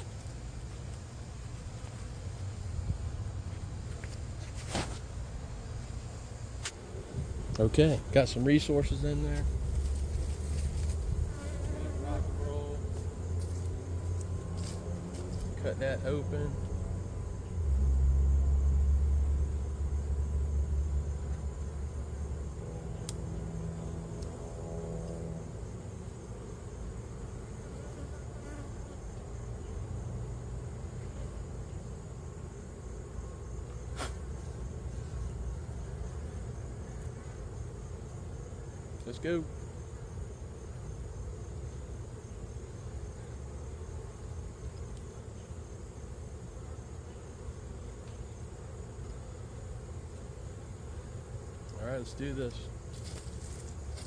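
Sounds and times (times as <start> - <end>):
bees buzzing: 6.0 - 54.0.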